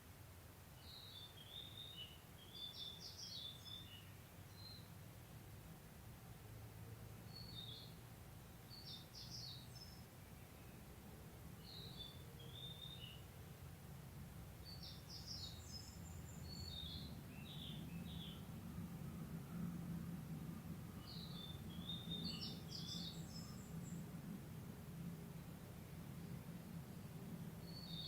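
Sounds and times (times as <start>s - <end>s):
small birds chirping and trilling: 0.8s - 5.0s, 7.2s - 8.0s, 8.6s - 10.9s, 11.6s - 13.3s, 14.6s - 18.5s, 21.0s - 24.1s, 25.4s - 28.0s
faint low rumble: 15.6s - 28.0s.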